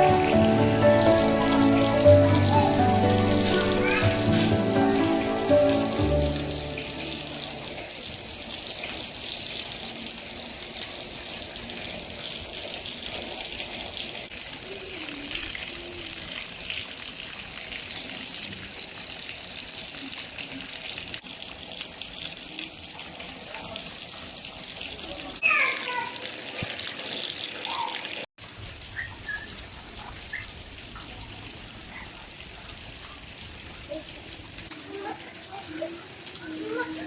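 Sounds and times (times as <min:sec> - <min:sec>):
heavy rain falling: 0:00.0 - 0:09.0, 0:28.4 - 0:37.0.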